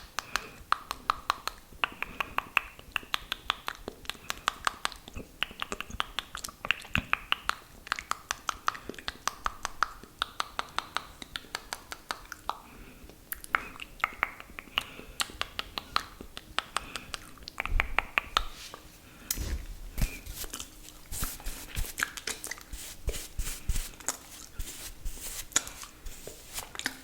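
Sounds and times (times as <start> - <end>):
wet mouth clicks and pops: 0.2 - 12.7
soft breathing: 18.5 - 27.0.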